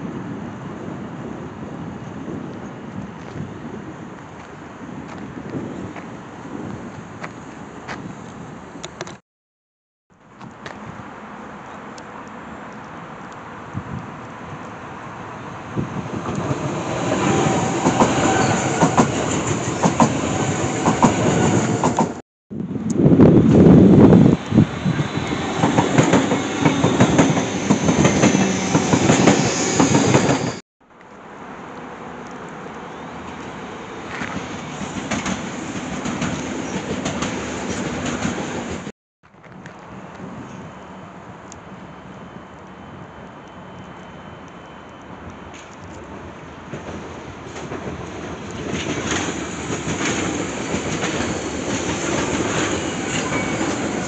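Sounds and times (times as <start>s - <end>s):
rumble of wheels on rail: 0.0s - 9.1s, 10.3s - 54.0s
distant train rolling: 10.7s - 22.2s, 22.8s - 54.0s
wheel squeal: 17.4s - 19.4s, 24.8s - 30.6s, 50.9s - 54.0s
train wheels clattering: 25.4s - 30.6s, 34.1s - 38.9s, 46.7s - 54.0s
wheels clacking over rail joints: 45.5s - 54.0s.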